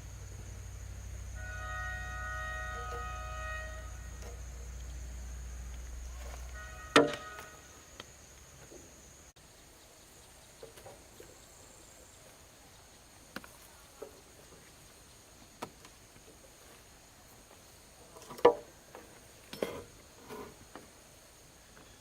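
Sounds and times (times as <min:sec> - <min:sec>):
sharp ringing knock: 0:06.8 - 0:07.6.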